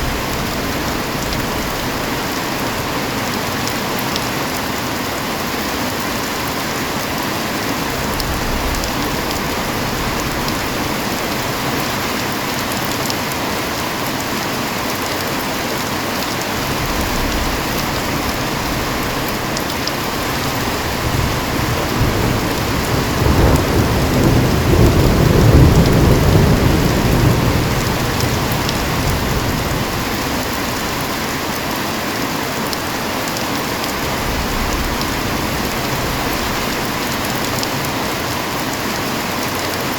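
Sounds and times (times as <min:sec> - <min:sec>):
thunder rolling: 0:00.0 - 0:03.0, 0:16.6 - 0:31.2, 0:33.9 - 0:38.5
heavy rain: 0:00.0 - 0:39.9.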